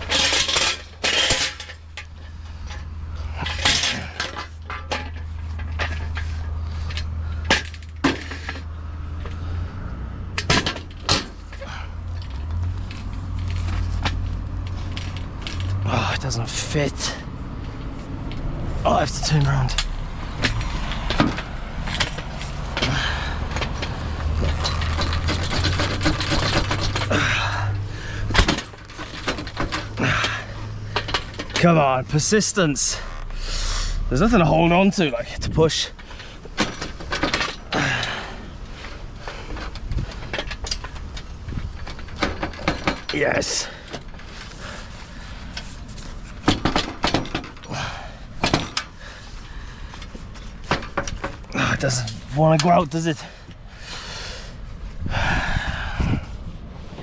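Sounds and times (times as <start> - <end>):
metal gear clicking and scraping: 0.0 - 9.3, 10.4 - 33.4.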